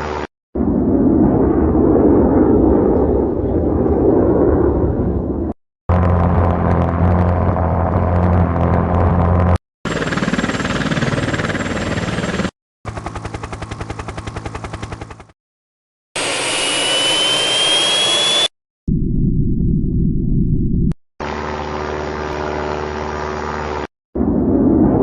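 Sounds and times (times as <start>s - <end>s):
jet engine low hum: 0.0s - 12.2s, 16.2s - 25.0s
jet engine rush: 16.2s - 18.5s
engine spooling up whine: 16.2s - 25.0s.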